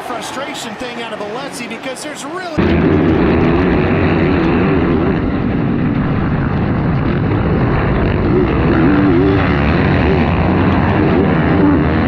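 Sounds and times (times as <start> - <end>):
motocross bike engines revving: 2.6 - 12.0.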